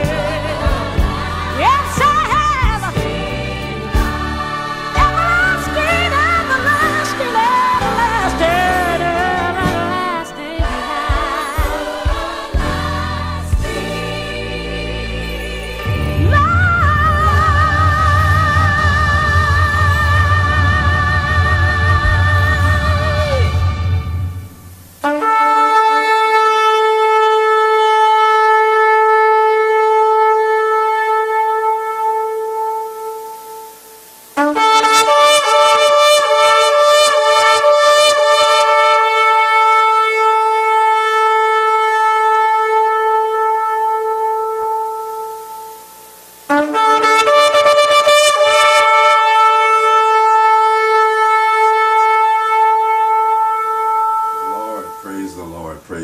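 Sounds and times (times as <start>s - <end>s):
shofar blasts: 15.8s - 55.8s.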